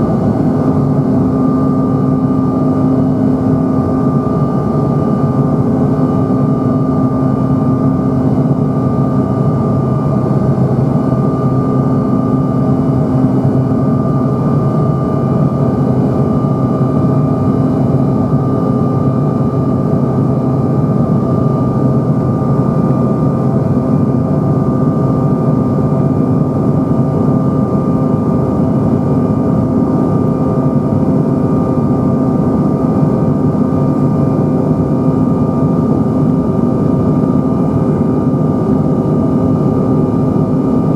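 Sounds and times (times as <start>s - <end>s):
constant engine whine: 0.0s - 40.9s
jet engine drone in cabin: 0.0s - 40.9s.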